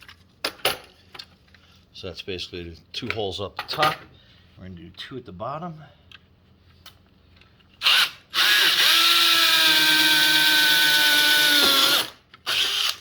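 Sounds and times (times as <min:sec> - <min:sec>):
power drill drilling plastic: 0:07.8 - 0:13.0.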